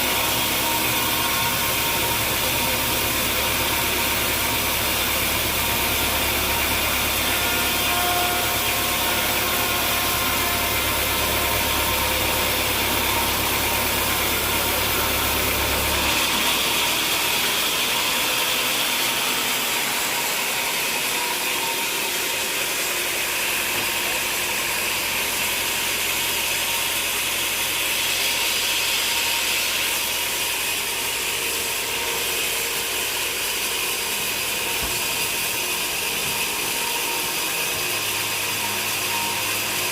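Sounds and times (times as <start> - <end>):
sawmill machinery engine hum: 0.0 - 39.9.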